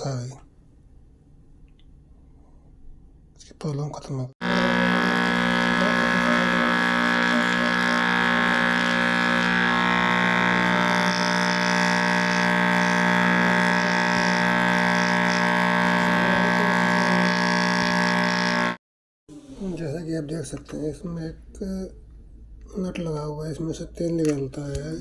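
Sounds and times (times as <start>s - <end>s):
sewing machine whirring: 4.4s - 18.8s.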